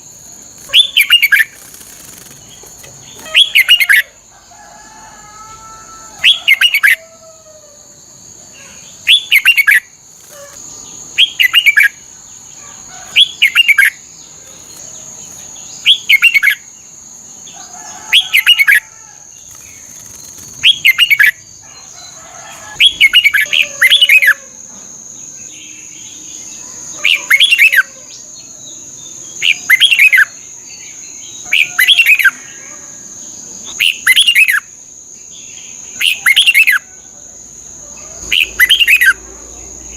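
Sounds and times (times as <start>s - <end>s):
bulbul singing warbled phrases: 0.6s - 4.1s.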